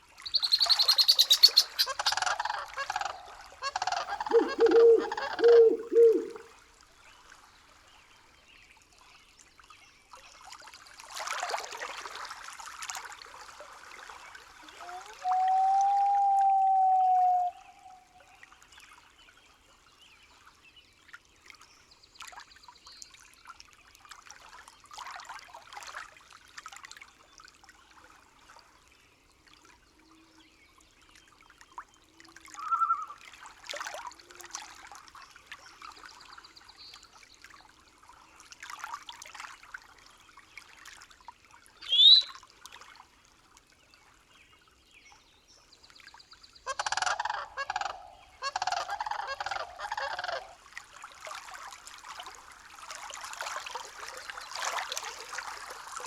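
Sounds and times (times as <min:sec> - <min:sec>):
rising whistle-like call: 0:00.3 - 0:02.2, 0:14.8 - 0:18.1, 0:32.6 - 0:33.2, 0:41.8 - 0:42.3
loud rapid bird calls: 0:00.3 - 0:06.4
bird calls: 0:00.3 - 0:06.5, 0:32.6 - 0:33.2, 0:41.8 - 0:42.3, 0:46.7 - 0:50.6.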